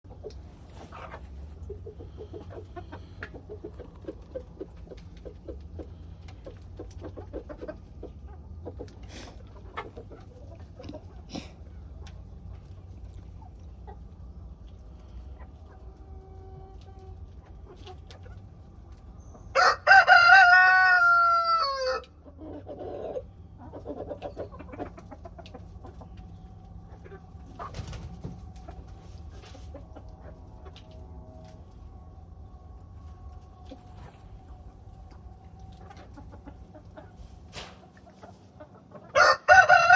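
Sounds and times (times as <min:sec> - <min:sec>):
chickens clucking: 0:00.0 - 0:39.9
rooster crowing: 0:19.5 - 0:22.1, 0:39.2 - 0:39.9.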